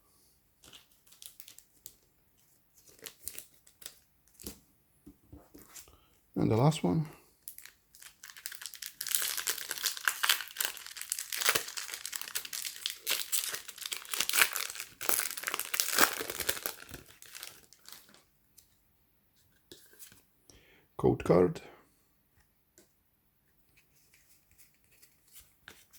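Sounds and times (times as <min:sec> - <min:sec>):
foil wrapper crinkling: 0:00.6 - 0:04.5, 0:07.5 - 0:18.2.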